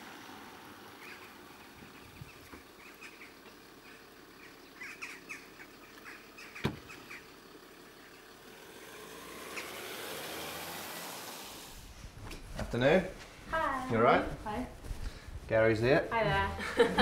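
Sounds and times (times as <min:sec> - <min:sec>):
small birds chirping: 0:00.8 - 0:10.0.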